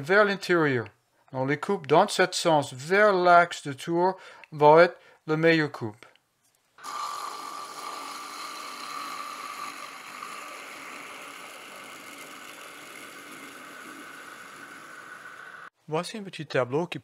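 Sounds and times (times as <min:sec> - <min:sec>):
wood lathe gouge cutting: 0:06.8 - 0:15.7.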